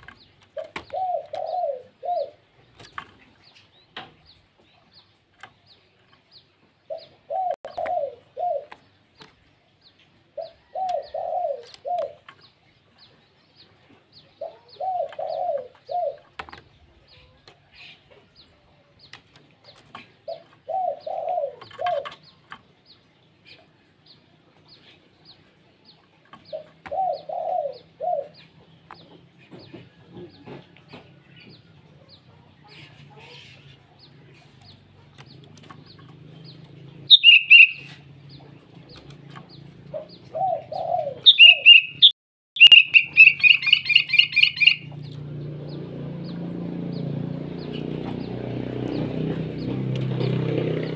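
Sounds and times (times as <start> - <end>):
dove cooing: 0.0 - 2.5, 6.8 - 8.9, 10.3 - 12.4, 14.2 - 18.5, 19.6 - 22.3, 26.4 - 31.0, 32.0 - 46.1
bird chirping high: 34.7 - 50.4.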